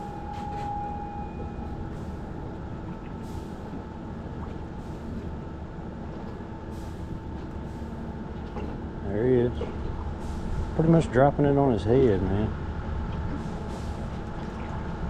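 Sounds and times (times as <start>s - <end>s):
high steady tone: 0.0s - 1.8s.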